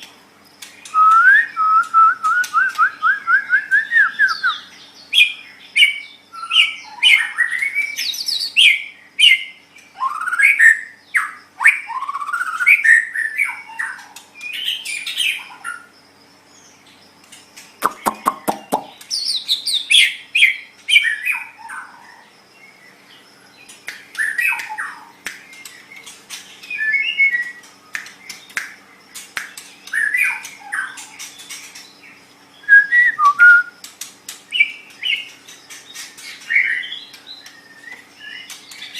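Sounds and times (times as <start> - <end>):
bird singing whistles and chirps: 0.8 - 15.9, 23.6 - 28.8, 29.4 - 33.9, 34.5 - 38.9
rapid bird clicks: 17.2 - 19.1, 23.7 - 26.8, 27.6 - 30.6, 33.8 - 35.0.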